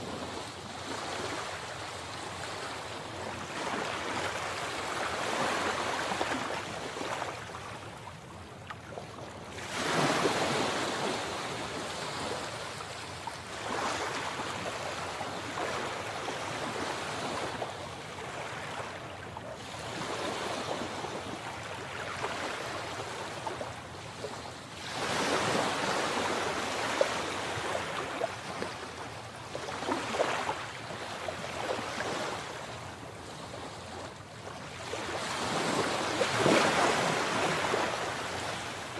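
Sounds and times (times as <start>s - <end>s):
sea waves breaking: 9.5s - 17.6s, 24.2s - 38.9s.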